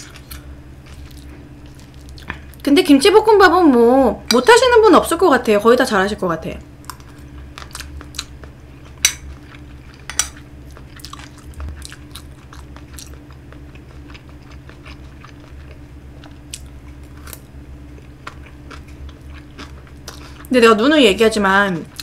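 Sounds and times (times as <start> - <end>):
steady low hum: 0.0 - 22.0
chewing and lip smacking: 0.1 - 2.6, 6.8 - 20.5.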